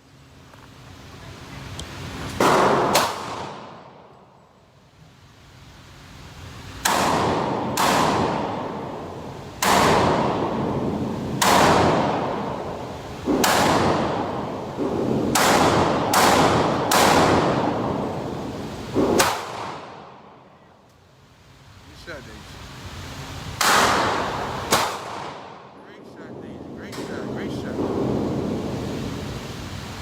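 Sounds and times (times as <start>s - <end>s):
gunshots: 2.4s - 4.0s, 6.8s - 9.0s, 9.6s - 18.3s, 19.0s - 20.3s, 23.6s - 25.7s.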